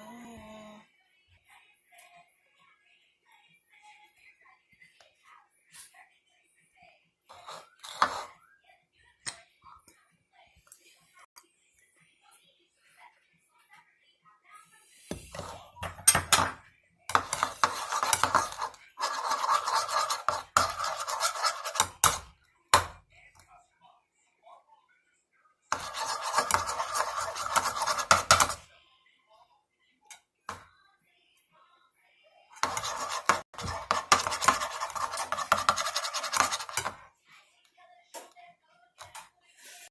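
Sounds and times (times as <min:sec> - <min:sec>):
utensil scraping a bowl: 0:07.3 - 0:08.4, 0:15.1 - 0:16.5, 0:17.1 - 0:22.3, 0:25.7 - 0:28.6, 0:32.6 - 0:37.0.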